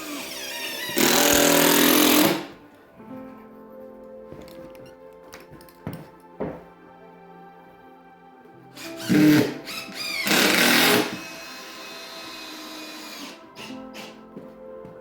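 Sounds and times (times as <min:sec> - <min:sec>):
handheld power tool running: 0:00.0 - 0:02.5, 0:08.8 - 0:14.1
background music: 0:00.0 - 0:15.0.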